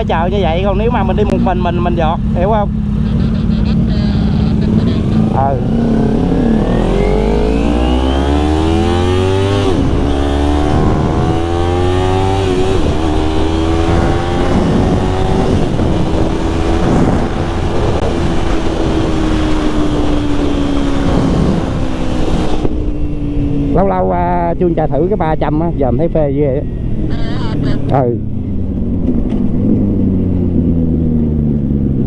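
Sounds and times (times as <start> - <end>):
motorcycle engine accelerating: 0.0 - 32.0
wind rushing over microphone: 4.8 - 27.2.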